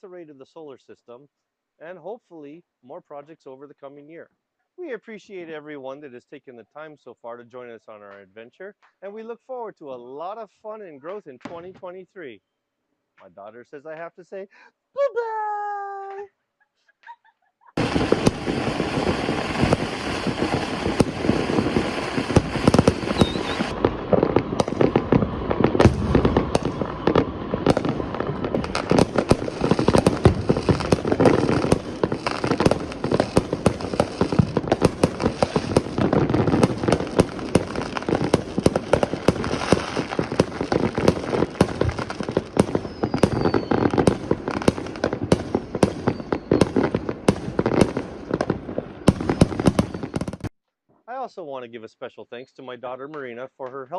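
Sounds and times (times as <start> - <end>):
fireworks shells booming: 11.1 - 12.0, 17.8 - 50.5
firecrackers crackling: 17.8 - 50.5.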